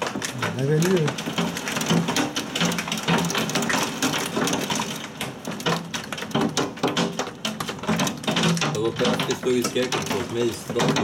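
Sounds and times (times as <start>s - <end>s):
precipitation ticking on hard surfaces: 0.0s - 11.0s.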